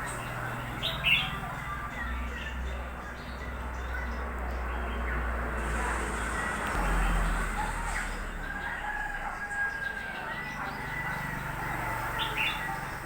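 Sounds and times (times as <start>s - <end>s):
rooster crowing: 7.6s - 12.0s.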